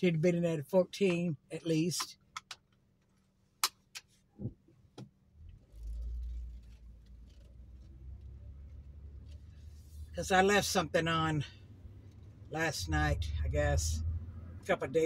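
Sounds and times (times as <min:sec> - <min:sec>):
low rumble: 0:11.7 - 0:14.8.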